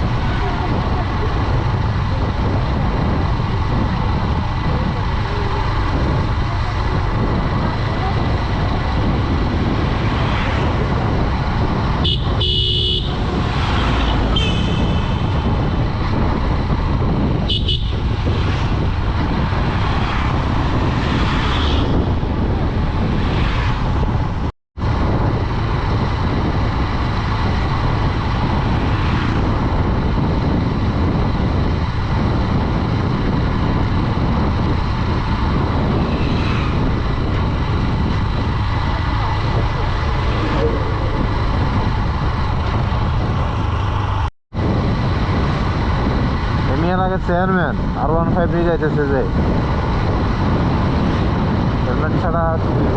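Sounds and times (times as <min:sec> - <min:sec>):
wind and road noise of motorcycle: 0:00.0 - 0:52.9
vehicle horn toots: 0:12.0 - 0:13.3, 0:14.0 - 0:15.3, 0:17.4 - 0:18.1.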